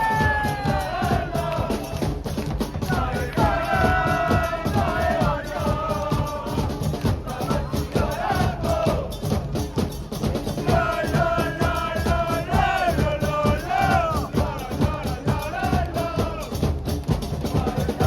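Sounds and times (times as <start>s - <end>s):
voices chanting a melody: 0.0s - 9.4s, 10.4s - 16.8s, 17.4s - 18.0s
pounding drum beat: 0.0s - 18.0s.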